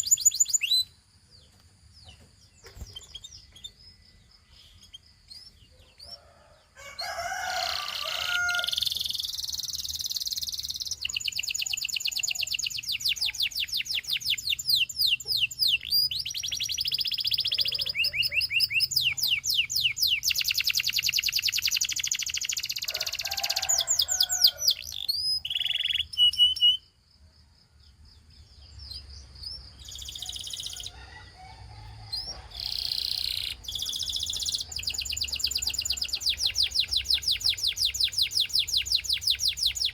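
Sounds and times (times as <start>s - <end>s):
canary singing trills: 0.0s - 27.0s, 28.0s - 39.9s.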